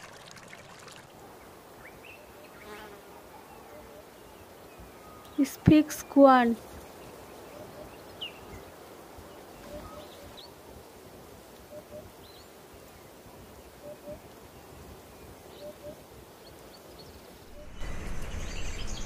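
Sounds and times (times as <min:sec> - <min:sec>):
faint forest hiss: 0:00.0 - 0:19.0
faint high bird chirps: 0:17.5 - 0:19.0.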